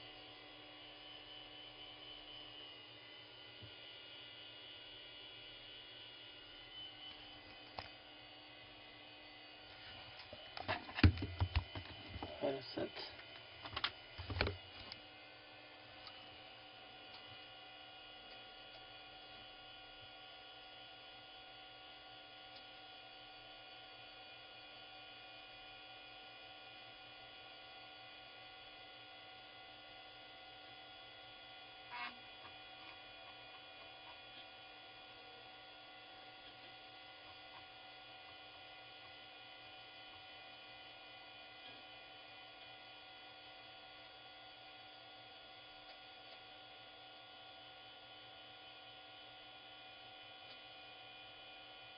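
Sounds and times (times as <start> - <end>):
computer hardware whining: 0.0 - 51.9
electrical hum: 0.0 - 51.9.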